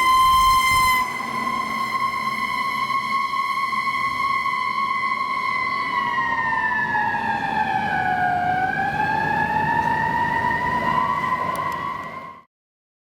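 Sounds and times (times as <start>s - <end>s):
fire engine siren wailing: 0.0s - 12.5s.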